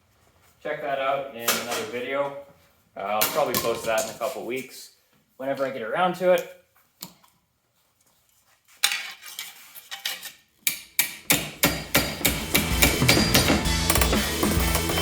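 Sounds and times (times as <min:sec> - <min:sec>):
hammer on sheet metal: 0:11.0 - 0:15.0
music with low tones: 0:12.2 - 0:15.0.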